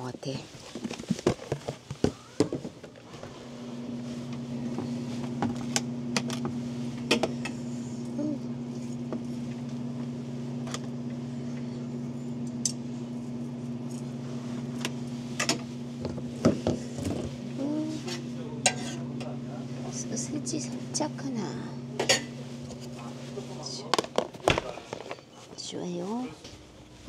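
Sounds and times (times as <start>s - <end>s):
low mechanical hum: 0.0s - 27.0s
metal and dishes clinking: 18.1s - 19.1s, 22.0s - 22.4s.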